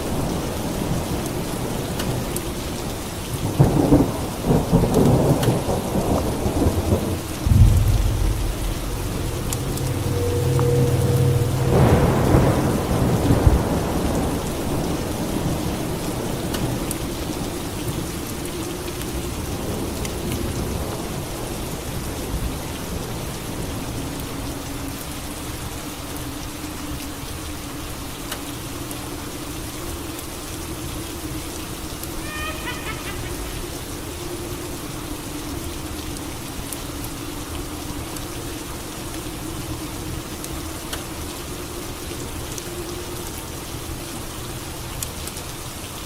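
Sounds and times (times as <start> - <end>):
steady rain falling: 0.0 - 46.0
thunderclap rumbling: 3.6 - 15.5.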